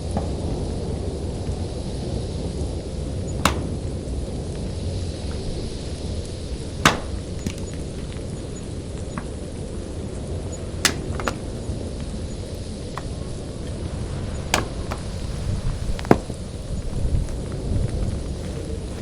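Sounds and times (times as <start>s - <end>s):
wind rumble on microphone: 0.0s - 19.0s
axe chopping firewood: 3.3s - 4.4s, 5.4s - 8.3s, 10.7s - 11.6s, 14.5s - 16.6s.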